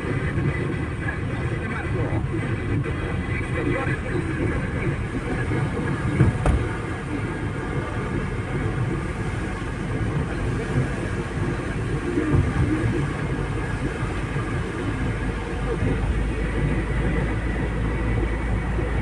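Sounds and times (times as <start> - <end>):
vehicle rumble: 0.0 - 19.0.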